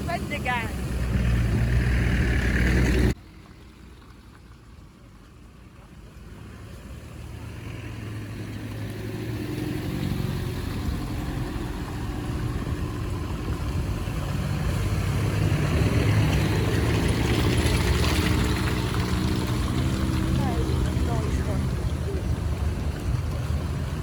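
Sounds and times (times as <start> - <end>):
car engine running: 0.0 - 5.1, 5.7 - 24.0.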